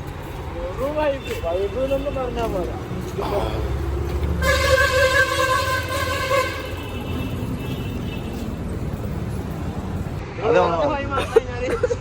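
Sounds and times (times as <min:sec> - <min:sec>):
street traffic rumble: 0:00.0 - 0:12.0
vehicle horn steady note: 0:04.4 - 0:08.4.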